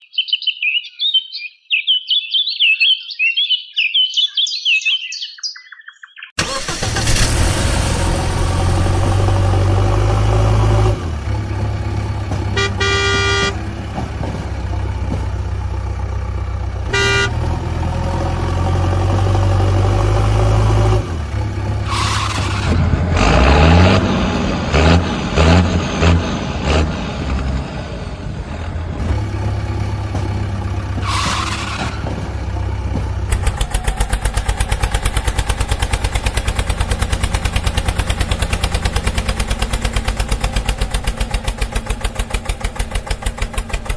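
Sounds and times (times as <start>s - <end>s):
cartoon engine rumble: 6.4s - 43.9s
engine revving: 6.4s - 43.9s
horn honks: 12.3s - 14.3s, 16.8s - 17.7s, 21.8s - 22.7s, 31.0s - 31.9s.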